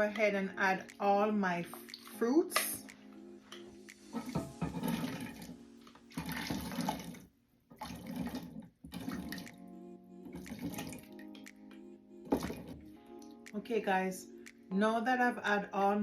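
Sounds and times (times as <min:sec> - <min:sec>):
background music: 0:00.0 - 0:07.2, 0:08.9 - 0:16.0
liquid splashing: 0:04.1 - 0:09.6, 0:10.3 - 0:11.2.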